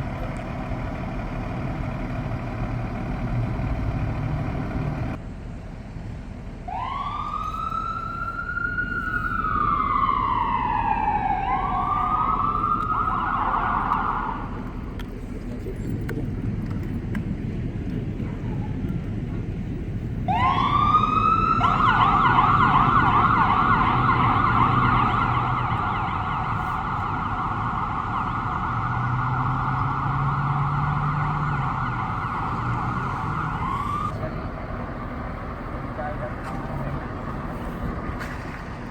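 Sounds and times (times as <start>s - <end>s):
low engine rumble: 0.0s - 28.9s, 31.2s - 38.9s
emergency vehicle siren: 6.6s - 14.9s, 18.2s - 38.9s.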